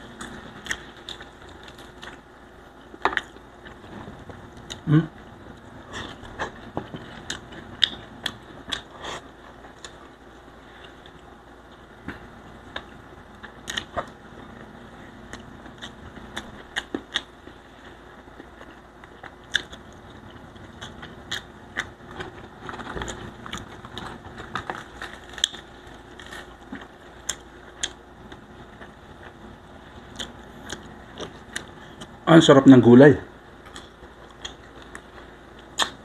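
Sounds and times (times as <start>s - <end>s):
person chewing and lip smacking: 0.1s - 2.2s, 2.8s - 10.2s, 10.8s - 17.6s, 18.3s - 29.4s, 30.0s - 32.2s, 33.6s - 36.0s
sharp clicks and crunches: 18.4s - 29.4s, 33.6s - 36.0s.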